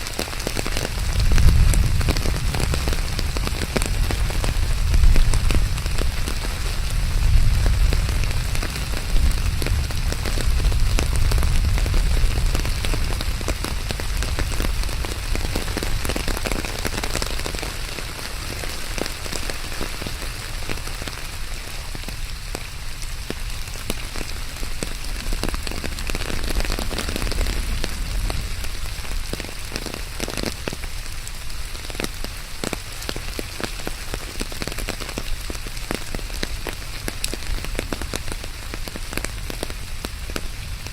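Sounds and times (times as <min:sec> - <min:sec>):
rain on a hard surface: 0:00.0 - 0:40.9
deep low rumble: 0:01.0 - 0:15.4, 0:25.0 - 0:29.7.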